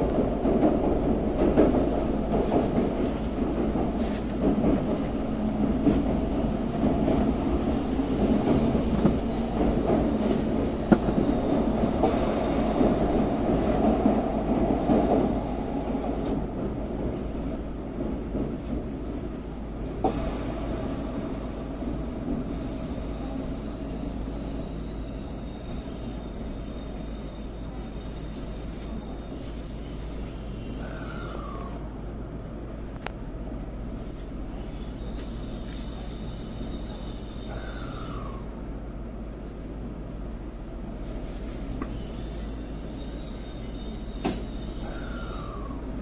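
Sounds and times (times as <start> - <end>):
train running rumble: 0.0 - 46.0
faint high whine: 17.4 - 31.7.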